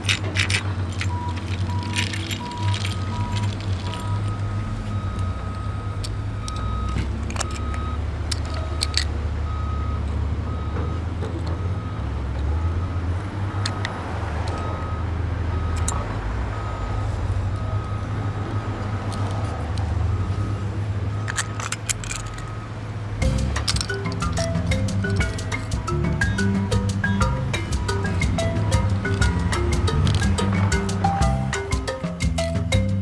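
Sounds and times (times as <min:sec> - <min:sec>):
sharp clicks and clinks: 0:00.0 - 0:04.5, 0:05.1 - 0:09.1, 0:13.6 - 0:14.7, 0:15.8 - 0:16.0, 0:21.2 - 0:22.6, 0:23.2 - 0:33.0
truck engine rumbling: 0:00.0 - 0:33.0
back-up alarm beeping: 0:01.0 - 0:18.7.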